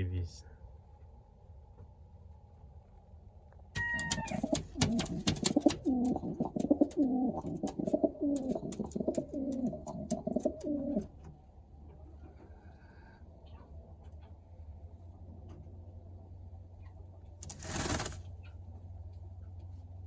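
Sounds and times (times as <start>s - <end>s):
sharp clicks and taps: 3.8s - 11.1s
pigeon cooing: 3.8s - 11.2s.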